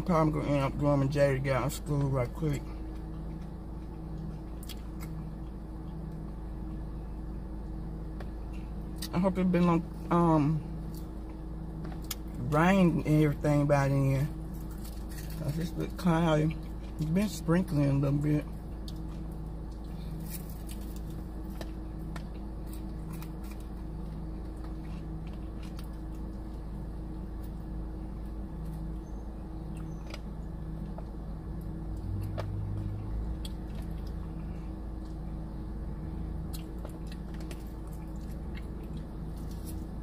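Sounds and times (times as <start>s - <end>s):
steady low hum: 0.0s - 40.0s
person chewing crunchy food: 2.8s - 6.3s, 14.4s - 17.1s, 18.5s - 40.0s.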